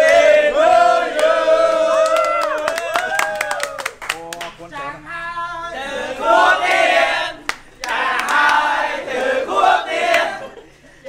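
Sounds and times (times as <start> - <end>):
group of people singing: 0.0 - 2.2, 5.4 - 10.7.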